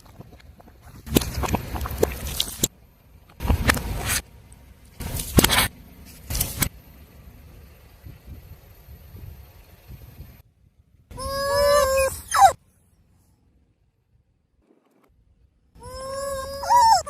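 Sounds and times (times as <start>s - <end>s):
objects crunching under car tyre: 0.0s - 2.7s, 4.9s - 6.7s
low rumble: 0.0s - 12.0s.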